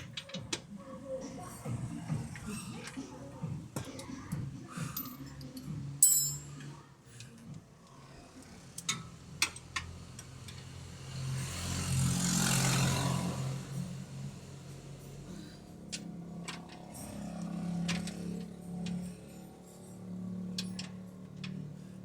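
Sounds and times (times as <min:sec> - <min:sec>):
metal tools clinking on car parts: 0:04.9 - 0:06.8.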